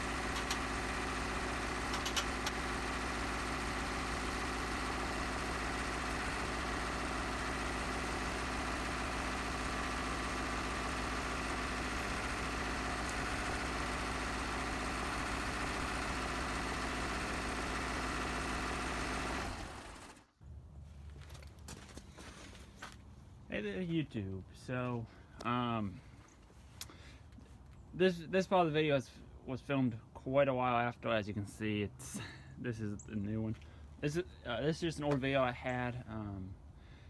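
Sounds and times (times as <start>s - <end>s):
engine idling: 0.0s - 20.3s.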